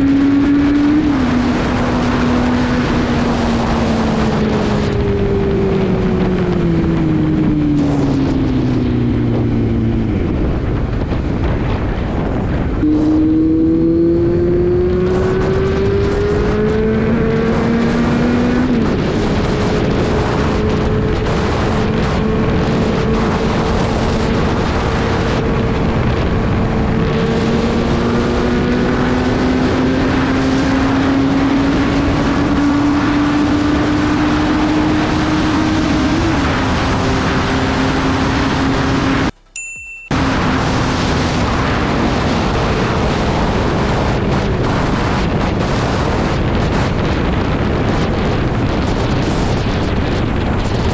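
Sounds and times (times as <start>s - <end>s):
motorcycle engine revving: 0.0s - 39.4s, 40.1s - 50.9s
wind rushing: 0.0s - 39.4s, 40.1s - 50.9s.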